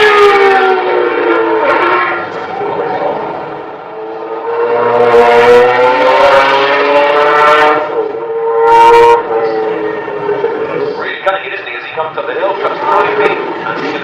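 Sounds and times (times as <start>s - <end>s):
car engine at high revs: 0.0s - 11.2s.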